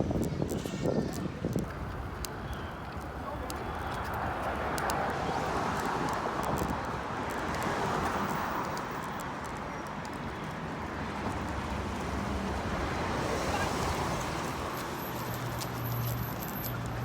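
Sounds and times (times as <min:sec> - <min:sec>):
wind on microphone: 0:00.0 - 0:03.2.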